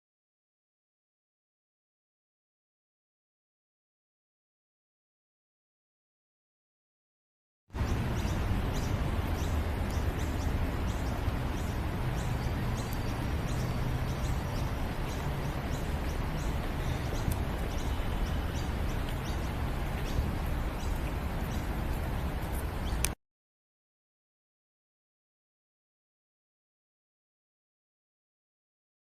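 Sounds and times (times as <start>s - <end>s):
small birds chirping: 7.7s - 23.2s
low rumble and hiss: 7.8s - 23.1s.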